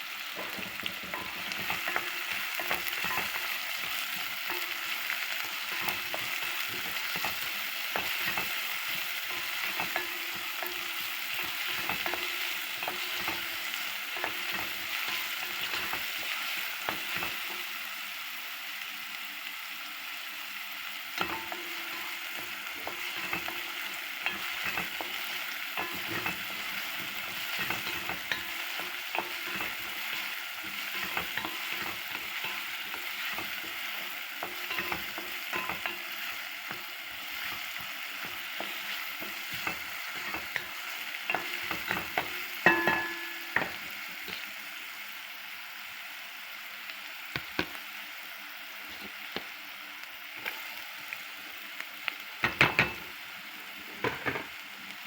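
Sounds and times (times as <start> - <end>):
food sizzling in a pan: 0.0 - 55.0
utensil clanging on a pan: 0.4 - 16.2, 21.2 - 43.9, 54.0 - 54.5
utensil scraping a pan: 21.2 - 43.7.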